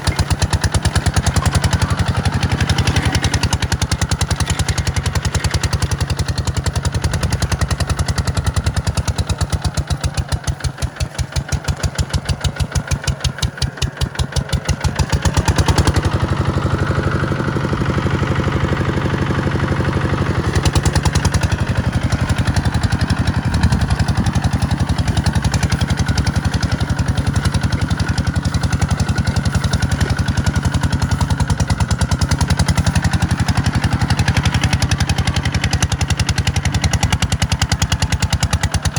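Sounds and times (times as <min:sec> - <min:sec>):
tractor diesel engine chugging: 0:00.0 - 0:38.9.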